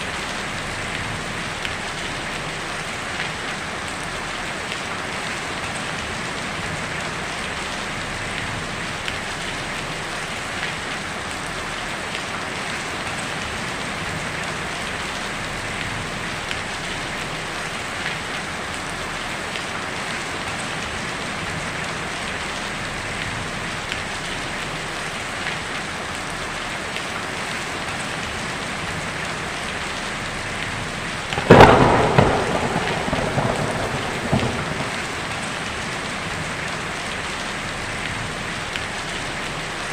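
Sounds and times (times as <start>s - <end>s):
heavy rain on a tin roof: 0.0s - 39.9s
loud thunderclap: 31.3s - 36.6s.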